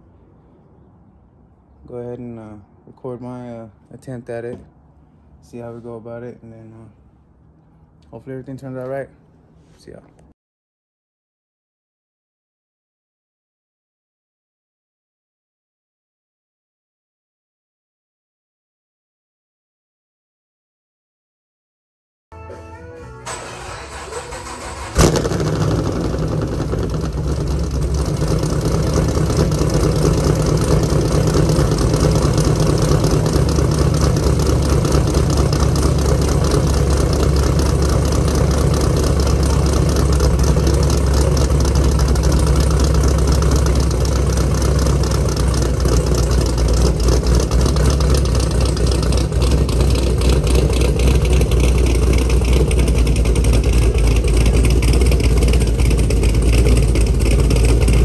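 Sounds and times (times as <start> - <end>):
deep exhaust note: 22.3 - 58.0
car engine idling: 23.2 - 58.0.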